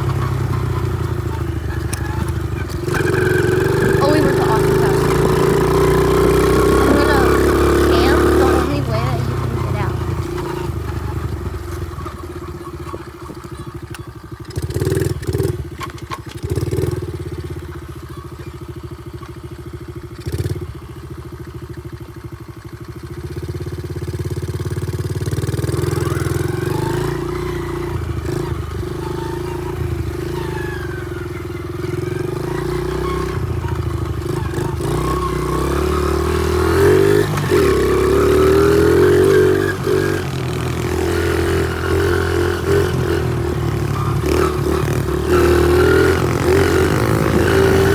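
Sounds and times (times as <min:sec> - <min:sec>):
small motorbike engine revving: 0:00.0 - 0:47.9.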